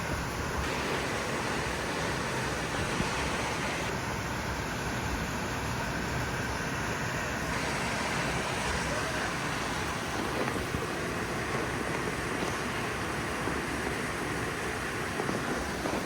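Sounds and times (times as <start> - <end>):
heavy rain pouring: 0.0 - 16.0
wind: 0.0 - 16.0.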